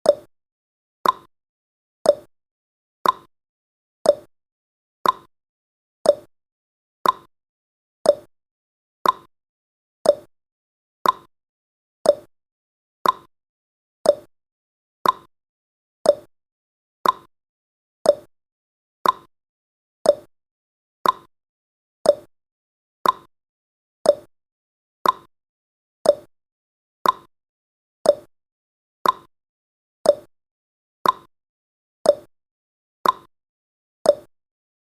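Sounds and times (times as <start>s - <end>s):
clock tick sound effect: 0.0s - 0.3s, 1.0s - 1.3s, 2.0s - 2.3s, 3.0s - 3.3s, 4.0s - 4.3s, 5.0s - 5.3s, 6.0s - 6.3s, 7.0s - 7.3s, 8.0s - 8.3s, 9.0s - 9.3s, 10.0s - 10.3s, 11.0s - 11.3s, 12.0s - 12.3s, 13.0s - 13.3s, 14.0s - 14.3s, 15.0s - 15.3s, 16.0s - 16.3s, 17.0s - 17.3s, 18.0s - 18.3s, 19.0s - 19.3s, 20.0s - 20.3s, 21.0s - 21.3s, 22.0s - 22.3s, 23.0s - 23.3s, 24.0s - 24.3s, 25.0s - 25.3s, 26.0s - 26.3s, 27.0s - 27.3s, 28.0s - 28.3s, 29.0s - 29.3s, 30.0s - 30.3s, 31.0s - 31.3s, 32.0s - 32.3s, 33.0s - 33.3s, 34.0s - 34.3s.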